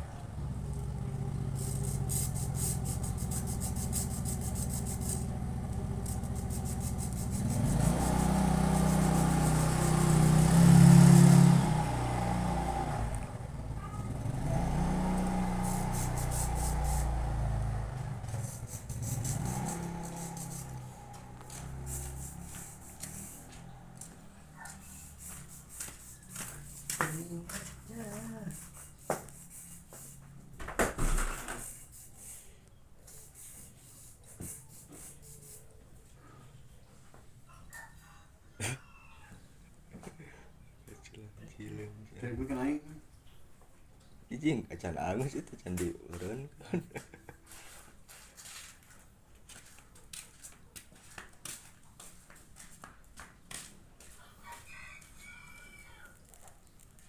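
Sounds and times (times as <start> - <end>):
soft taps and scuffing: 21.1 - 30.4, 47.5 - 55.2
rooster crowing: 37.8 - 39.5, 54.2 - 56.4.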